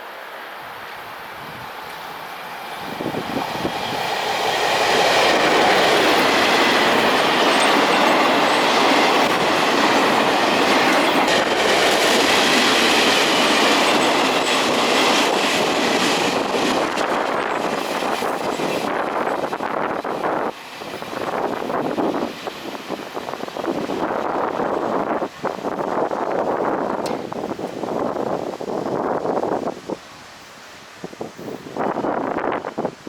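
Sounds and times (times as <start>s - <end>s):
train wheels rushing on rails: 0.0s - 33.0s.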